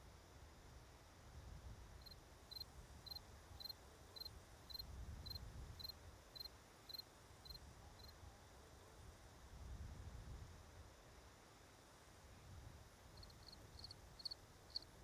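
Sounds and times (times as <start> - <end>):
cricket chirping: 2.0 - 8.2, 13.2 - 15.0.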